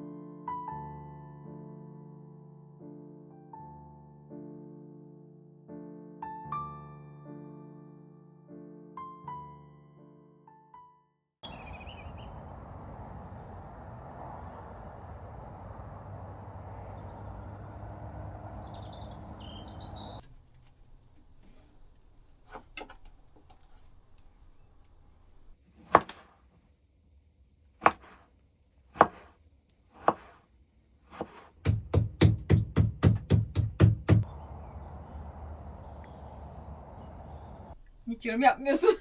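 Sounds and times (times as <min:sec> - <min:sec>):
bird chirp: 0:11.4 - 0:21.7, 0:33.5 - 0:38.0
outdoor background noise: 0:11.4 - 0:39.0
knife chopping on cutting board: 0:25.8 - 0:26.3, 0:27.8 - 0:28.3, 0:29.0 - 0:29.4, 0:30.0 - 0:30.4, 0:31.1 - 0:34.2.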